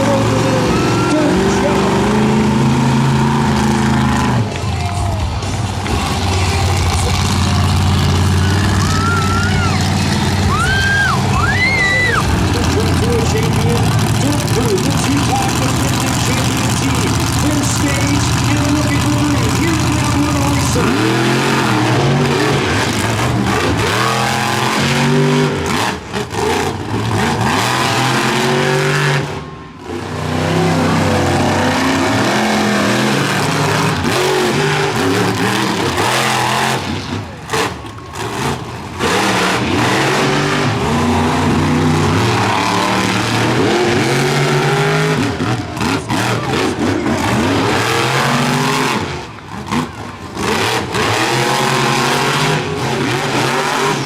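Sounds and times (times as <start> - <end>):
monster truck engines revving: 0.0 - 54.0.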